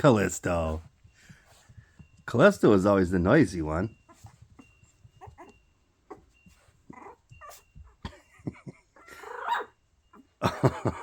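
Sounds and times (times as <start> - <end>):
puppy high whine: 3.9 - 10.4
puppies yipping and whimpering: 4.0 - 8.0, 8.7 - 10.3.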